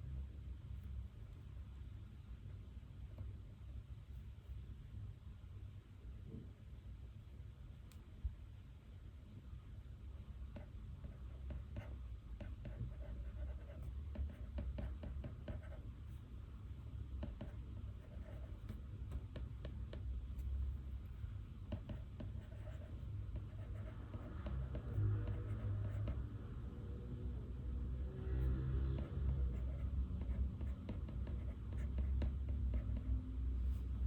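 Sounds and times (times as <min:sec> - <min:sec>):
low room rumble: 0:00.0 - 0:34.0
pen scratching on paper: 0:10.6 - 0:16.2, 0:17.2 - 0:26.3, 0:28.8 - 0:33.2.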